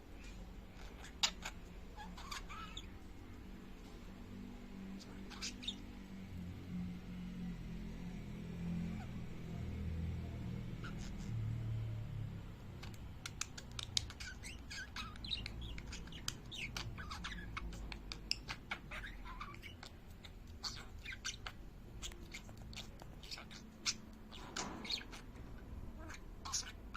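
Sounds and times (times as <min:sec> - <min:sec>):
budgerigar chirping: 0:00.7 - 0:03.0, 0:05.0 - 0:06.0, 0:10.7 - 0:11.5, 0:12.8 - 0:26.9.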